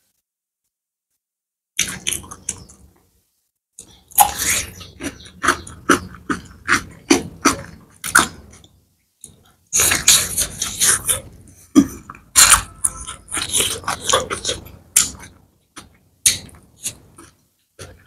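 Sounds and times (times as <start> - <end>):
cucumber crunching: 3.8 - 11.3, 11.9 - 18.0
wet chewing and squishing: 3.8 - 18.0.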